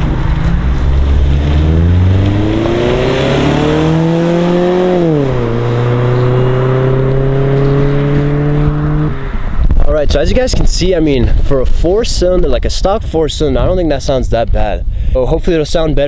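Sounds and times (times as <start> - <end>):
car engine accelerating: 0.0 - 9.8.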